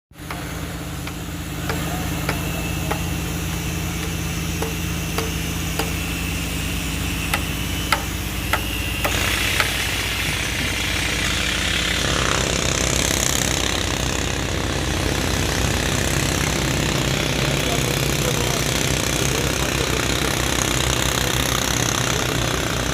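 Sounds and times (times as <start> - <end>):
sharp knocks: 0.2 - 6.2, 7.3 - 10.8
machine engine running: 0.2 - 22.9.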